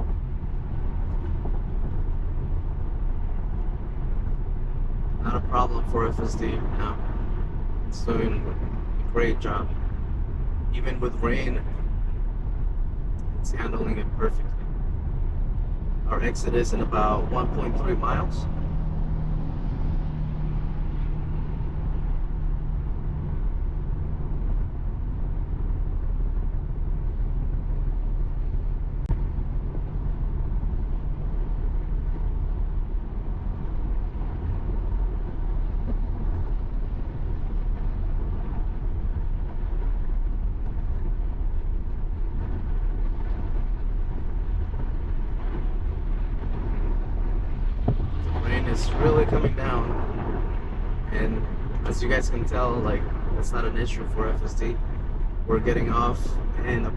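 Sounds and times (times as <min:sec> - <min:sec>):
road and tyre noise inside car: 0:00.0 - 0:56.9
rain and spray on car: 0:29.3 - 0:56.9.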